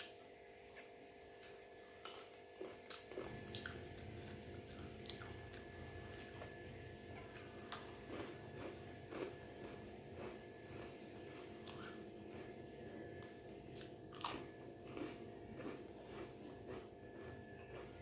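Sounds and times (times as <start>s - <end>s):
faint electrical hum: 0.0s - 18.0s
chewing and mouth smacks: 7.2s - 18.0s.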